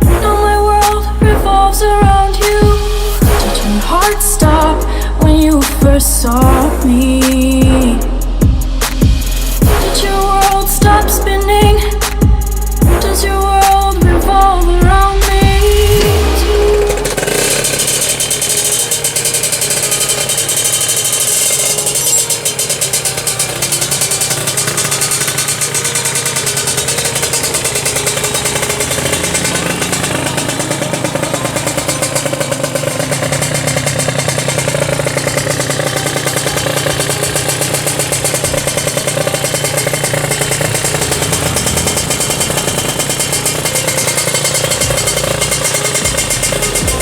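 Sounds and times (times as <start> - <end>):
two-stroke engine buzzing: 0.0 - 47.0.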